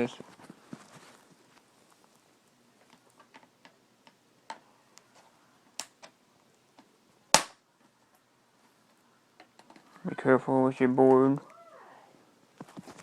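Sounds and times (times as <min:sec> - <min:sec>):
loud plastic crack: 0:07.4 - 0:07.6.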